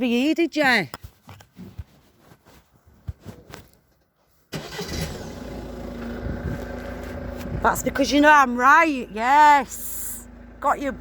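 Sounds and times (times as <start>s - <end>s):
car engine idling: 4.6s - 11.0s.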